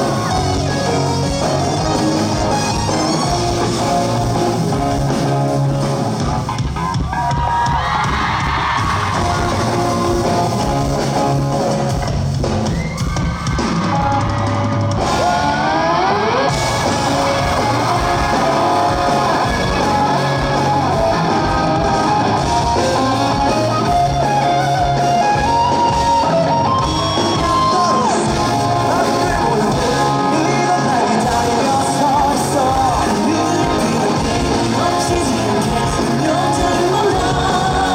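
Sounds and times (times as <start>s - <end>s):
live rock band playing: 0.0s - 37.9s
rising sliding guitar note: 15.0s - 30.3s.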